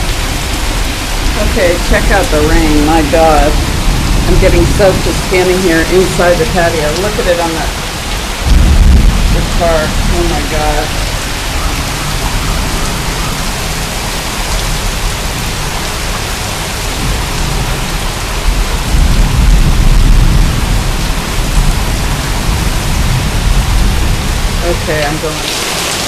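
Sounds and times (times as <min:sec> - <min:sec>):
heavy rain pouring: 0:00.0 - 0:26.0
deep low rumble: 0:08.1 - 0:15.7, 0:16.9 - 0:25.1.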